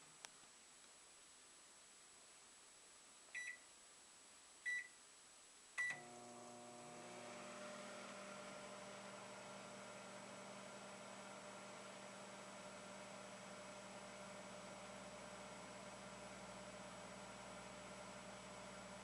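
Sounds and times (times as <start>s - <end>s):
microwave keypad beeps: 3.4s - 3.6s, 4.7s - 4.9s, 5.8s - 6.0s
microwave oven humming: 5.8s - 19.0s.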